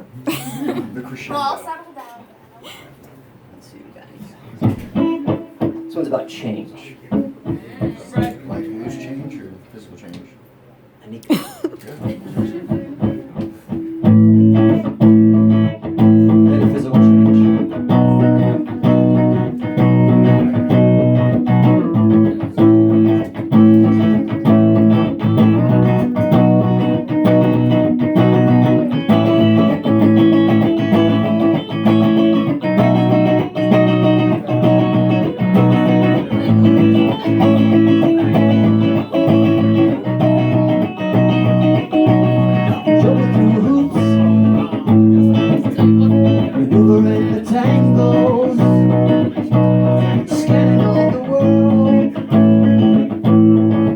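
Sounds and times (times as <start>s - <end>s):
electric guitar picked notes: 4.8s - 6.3s, 12.7s - 53.9s.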